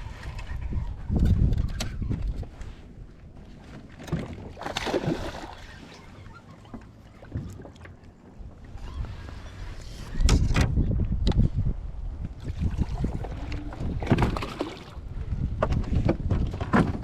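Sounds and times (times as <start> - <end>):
wind gusting over microphone: 0.0 - 2.9, 8.6 - 17.0
water lapping at boat hull: 2.3 - 9.6, 12.3 - 17.0.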